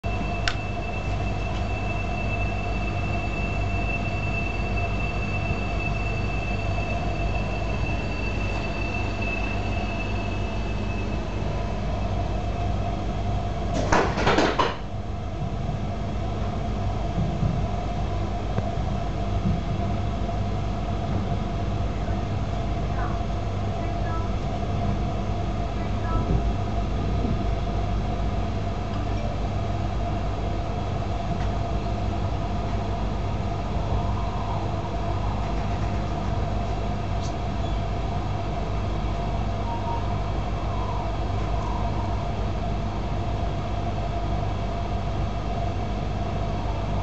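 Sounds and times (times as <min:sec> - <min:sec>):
faint high whine: 0:00.0 - 0:13.6, 0:31.2 - 0:47.0
train interior rumble: 0:00.0 - 0:47.0
faint steady tone: 0:39.0 - 0:44.4.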